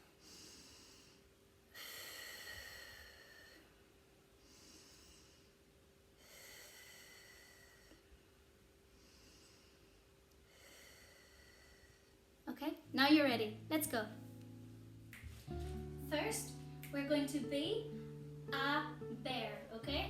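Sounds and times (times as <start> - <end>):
woman breathing slowly: 0.0 - 12.4.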